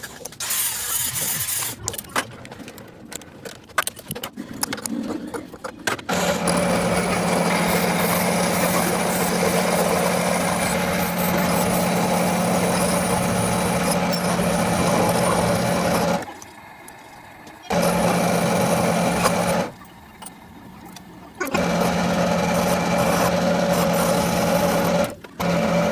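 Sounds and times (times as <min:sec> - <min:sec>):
power tool motor humming: 0:06.1 - 0:16.3, 0:17.7 - 0:19.8, 0:21.4 - 0:25.9.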